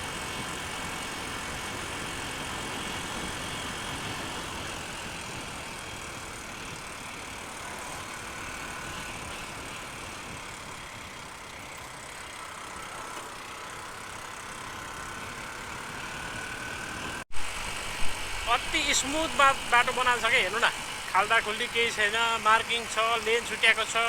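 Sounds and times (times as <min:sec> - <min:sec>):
motorcycle engine running: 0:00.0 - 0:24.0
wind and road noise: 0:00.0 - 0:24.0
faint whine: 0:17.4 - 0:24.0.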